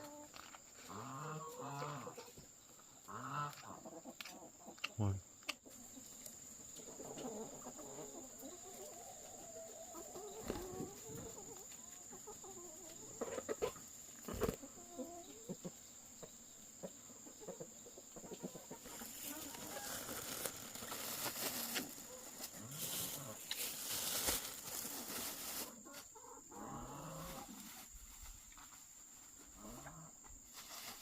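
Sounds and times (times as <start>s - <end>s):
chickens clucking: 0.0s - 30.4s
rustling: 18.9s - 26.1s, 30.5s - 31.0s.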